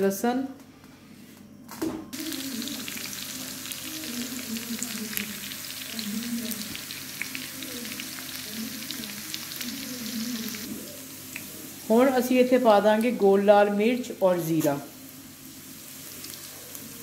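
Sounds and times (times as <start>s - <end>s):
garlic sizzling in hot fat: 2.1s - 17.0s.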